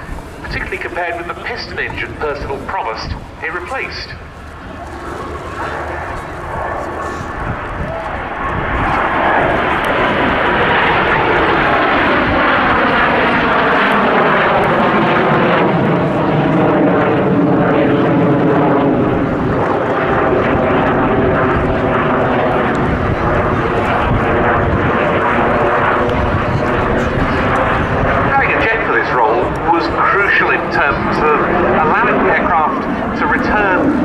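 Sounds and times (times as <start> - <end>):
jet aircraft passing: 0.0 - 34.0.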